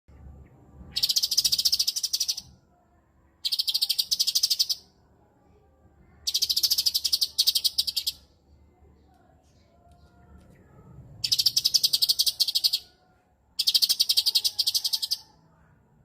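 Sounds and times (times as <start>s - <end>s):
bird buzzy chattering: 0.9s - 2.5s, 6.3s - 8.2s, 11.2s - 12.8s, 13.6s - 15.2s.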